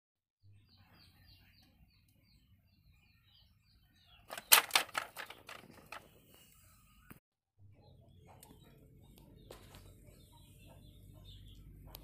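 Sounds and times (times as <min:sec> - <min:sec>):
faint bird chirping: 0:00.5 - 0:12.0
rattle of sharp clicks: 0:04.3 - 0:06.0.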